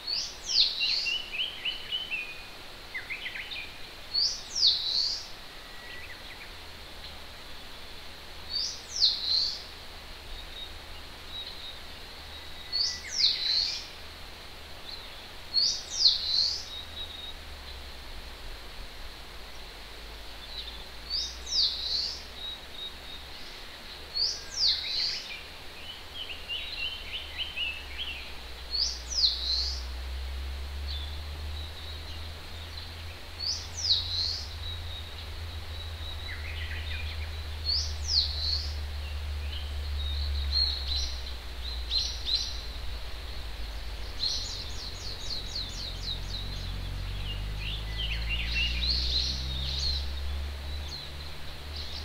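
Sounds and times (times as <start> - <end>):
birds chirping: 0.0 - 52.0
low steady rumble: 25.6 - 52.0.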